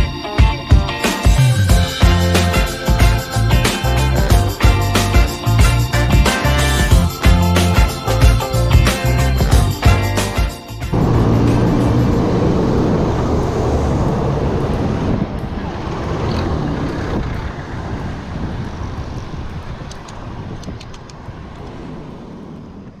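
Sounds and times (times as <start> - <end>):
road traffic: 1.0 - 23.0
wind rushing over microphone: 10.9 - 23.0.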